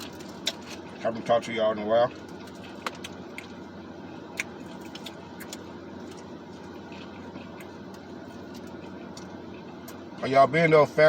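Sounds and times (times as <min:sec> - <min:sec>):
car cabin low hum: 0:00.0 - 0:11.0.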